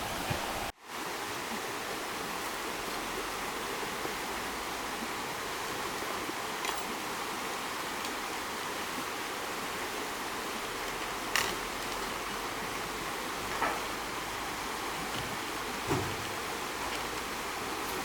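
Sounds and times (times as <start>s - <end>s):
stream water flowing: 0.0s - 18.0s.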